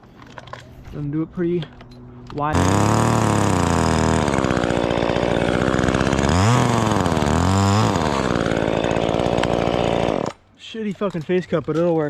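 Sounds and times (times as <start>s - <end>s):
chainsaw cutting wood: 2.5s - 10.4s.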